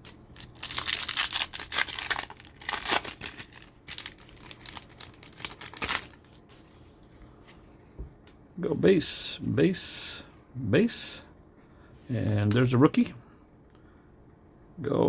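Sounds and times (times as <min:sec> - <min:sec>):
plastic wrapper tearing and crinkling: 0:00.0 - 0:06.7.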